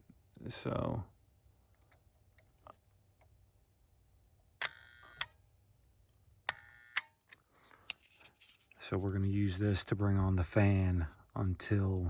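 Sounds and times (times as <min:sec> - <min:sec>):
sharp clicks of small hardware: 0:04.6 - 0:05.4, 0:06.0 - 0:08.8.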